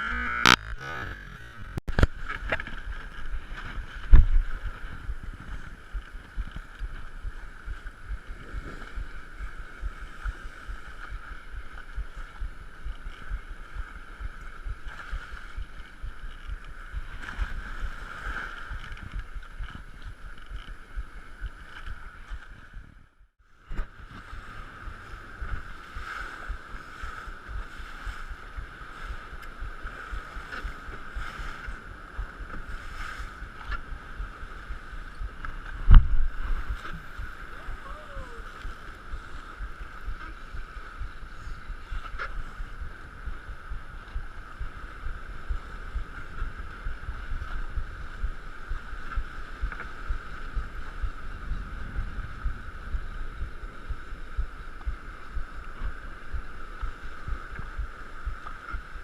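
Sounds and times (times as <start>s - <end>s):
steady mid-pitched hum: 0.0s - 59.0s
wind buffeting microphone: 0.8s - 59.0s.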